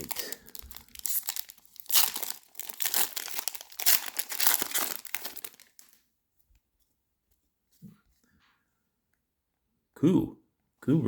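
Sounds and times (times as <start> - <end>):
plastic wrapper tearing and crinkling: 0.0 - 6.0.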